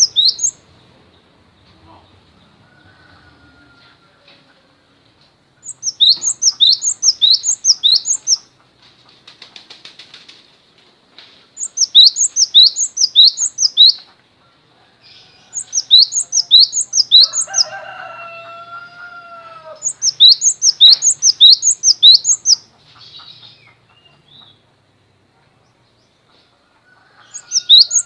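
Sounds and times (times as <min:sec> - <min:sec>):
songbird singing high notes: 0:00.0 - 0:00.6, 0:05.6 - 0:08.5, 0:11.6 - 0:14.0, 0:15.5 - 0:17.7, 0:19.8 - 0:22.6, 0:27.2 - 0:28.0.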